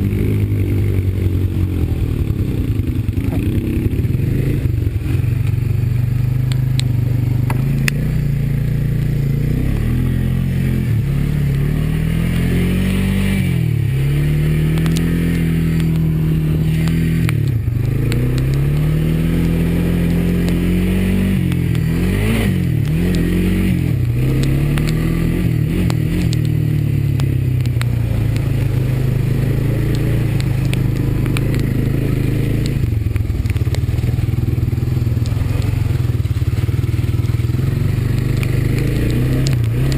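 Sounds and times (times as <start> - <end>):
atv engine running: 0.0 - 39.9
clicks and clatter: 25.8 - 29.1, 29.7 - 31.8.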